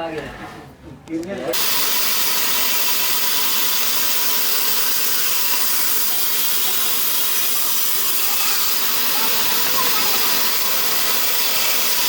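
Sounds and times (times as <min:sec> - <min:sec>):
steady hiss: 0:01.5 - 0:12.0.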